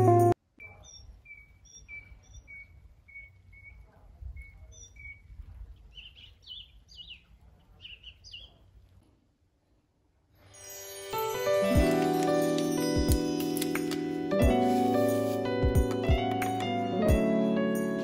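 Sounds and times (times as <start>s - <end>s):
birds chirping: 0.5s - 8.8s.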